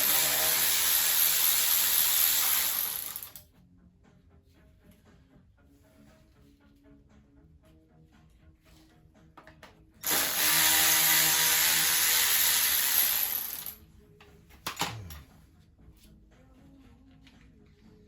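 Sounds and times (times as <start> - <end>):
cordless power driver running: 0.0 - 3.4, 10.0 - 13.8.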